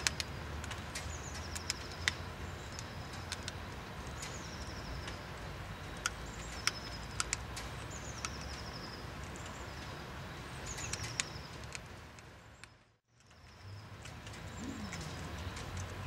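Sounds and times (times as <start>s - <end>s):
sharp clicks: 0.0s - 4.4s, 6.0s - 9.6s
low steady outdoor rumble: 0.0s - 16.0s.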